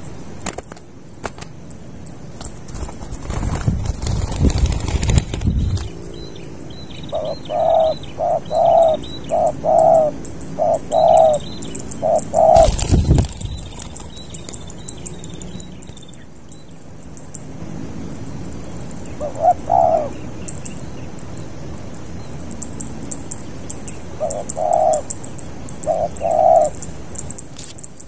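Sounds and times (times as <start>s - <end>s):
rustling noise: 2.3s - 6.1s, 12.6s - 14.8s
dove cooing: 4.1s - 15.7s, 19.1s - 20.4s, 24.0s - 26.9s.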